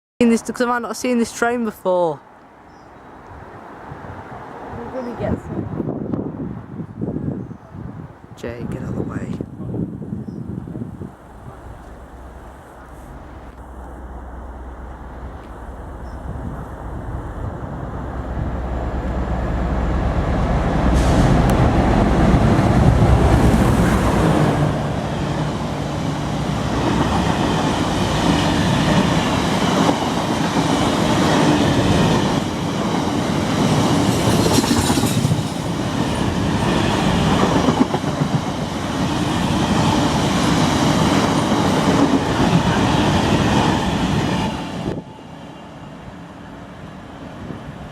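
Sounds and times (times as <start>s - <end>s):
diesel locomotive droning: 9.6s - 47.9s.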